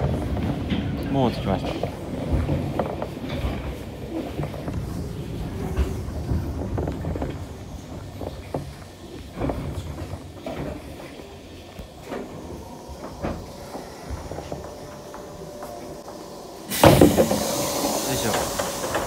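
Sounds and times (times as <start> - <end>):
loud train hiss: 13.4 - 19.0.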